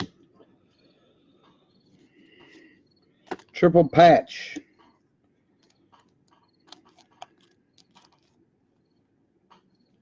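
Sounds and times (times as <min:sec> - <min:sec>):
trading cards being handled: 0:05.6 - 0:08.4.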